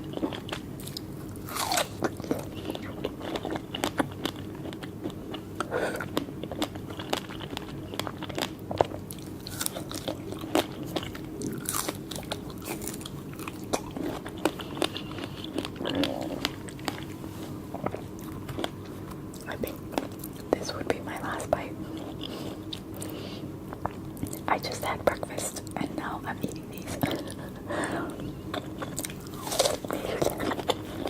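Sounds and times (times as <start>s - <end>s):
biting and chewing fruit: 0.0s - 20.6s, 26.9s - 31.0s.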